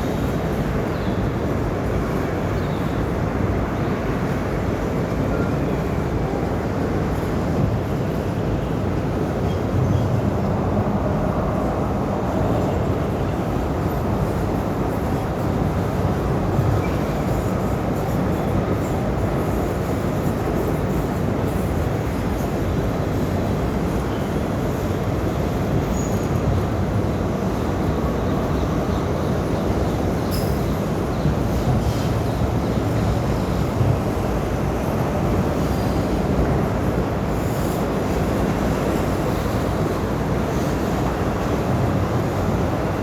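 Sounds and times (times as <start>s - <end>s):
train rumbling over a bridge: 0.0s - 43.0s.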